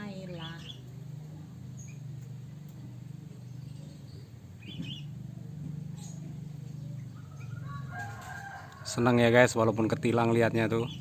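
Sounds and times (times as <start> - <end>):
high bird chirps: 0.0 - 0.9, 3.4 - 5.2
steady low hum: 0.0 - 11.0.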